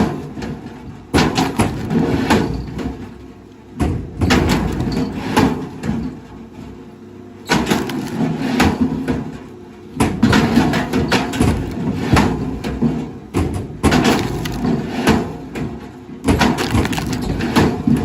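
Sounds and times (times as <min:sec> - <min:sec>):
wood cracking and splintering: 0:07.5 - 0:08.4, 0:10.7 - 0:12.5, 0:13.8 - 0:15.3, 0:16.3 - 0:18.0.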